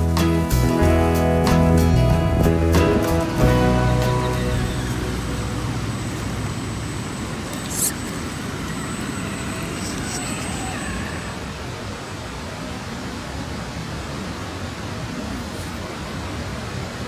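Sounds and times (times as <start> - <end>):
toy truck motor whine: 3.5 - 11.5.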